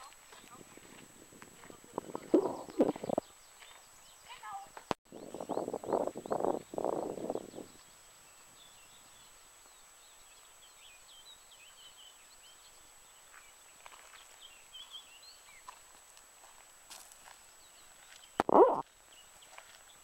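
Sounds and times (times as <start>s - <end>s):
birds chirping and twittering: 0.2s - 15.8s.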